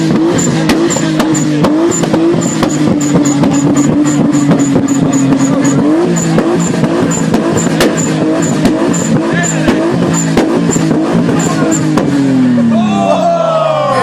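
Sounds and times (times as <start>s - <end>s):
exhaust backfire pops: 0.0s - 12.4s
turbocharged engine revving: 0.0s - 14.0s.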